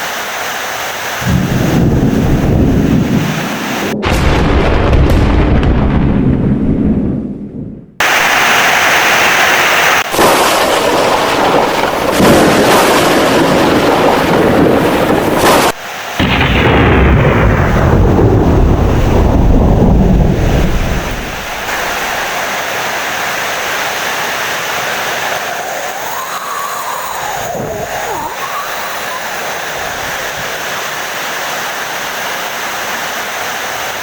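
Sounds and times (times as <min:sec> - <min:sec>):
heavy rain: 0:00.0 - 0:06.4, 0:08.0 - 0:34.0
rolling thunder rumble: 0:01.2 - 0:08.3, 0:10.0 - 0:22.6.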